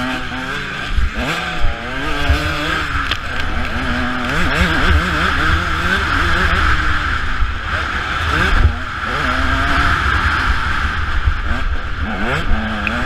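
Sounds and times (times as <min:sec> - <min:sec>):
motocross bike engine revving: 0:00.0 - 0:13.0
wind rushing on camera: 0:00.0 - 0:13.0.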